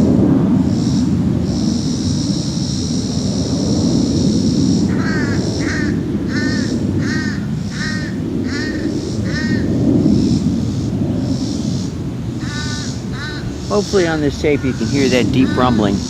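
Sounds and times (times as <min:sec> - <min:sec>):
jet engines rumbling: 0:00.0 - 0:16.0
bird calling: 0:04.1 - 0:16.0.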